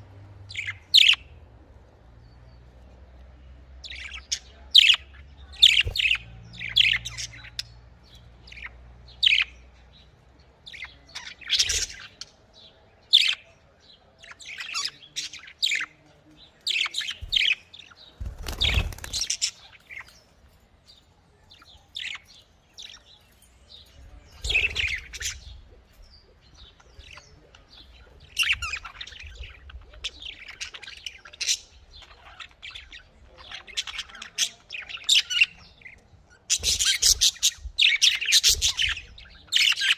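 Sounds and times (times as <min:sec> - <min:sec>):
budgerigar chirping and warbling: 0:24.4 - 0:25.6, 0:36.5 - 0:39.9.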